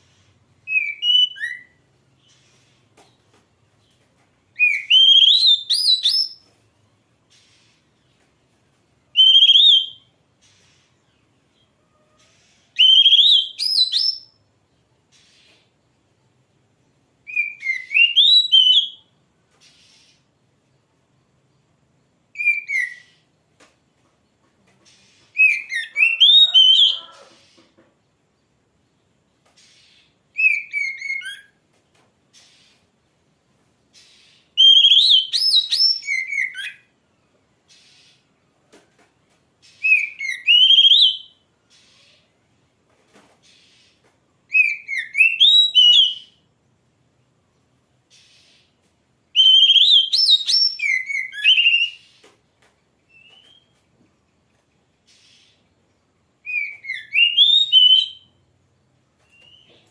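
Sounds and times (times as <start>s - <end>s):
bird whistling song: 0.6s - 2.7s, 4.5s - 6.5s, 9.1s - 10.8s, 12.4s - 14.4s, 17.2s - 20.2s, 22.3s - 23.3s, 25.0s - 27.5s, 29.6s - 31.6s, 34.0s - 36.9s, 39.6s - 42.0s, 44.5s - 46.4s, 49.3s - 52.2s, 53.1s - 53.8s, 56.4s - 58.4s, 59.2s - 59.9s
bird whistling rising phrases: 4.6s - 6.4s, 12.8s - 14.3s, 25.4s - 27.3s, 49.4s - 52.0s, 56.5s - 58.3s
faint scratchy sounds: 19.1s - 34.6s.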